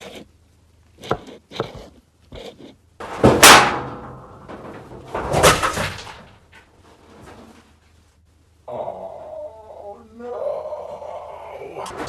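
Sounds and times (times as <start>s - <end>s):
metal vent clattering: 3.0s - 7.7s, 11.8s - 12.0s.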